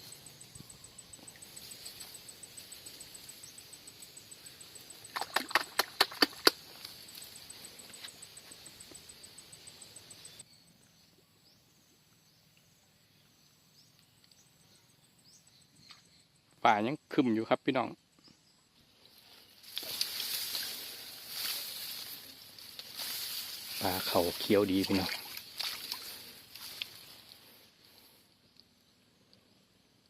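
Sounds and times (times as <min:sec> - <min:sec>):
faint scattered chirps: 0:00.0 - 0:11.3, 0:18.2 - 0:29.7
insects trilling: 0:00.0 - 0:17.5, 0:18.7 - 0:30.0
sharp clicks: 0:04.9 - 0:07.3.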